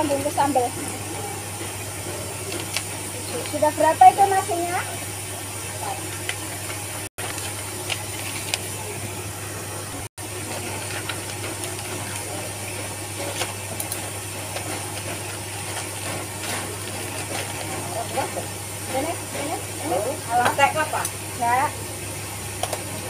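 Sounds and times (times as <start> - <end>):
rain hissing: 0.0 - 23.0
paper wrappers rustling: 6.0 - 9.0, 10.2 - 20.6.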